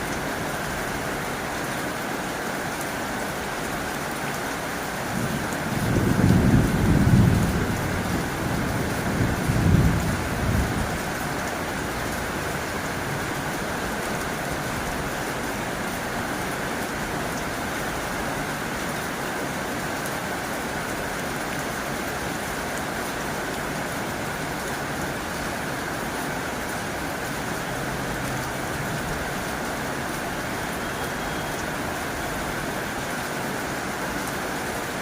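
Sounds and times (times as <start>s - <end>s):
heavy rain on a tin roof: 0.0s - 35.0s
thunder rumbling: 5.1s - 11.0s.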